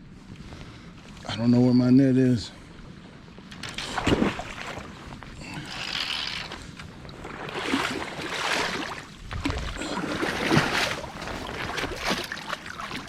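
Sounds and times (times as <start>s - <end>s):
river water splashing: 3.5s - 13.0s.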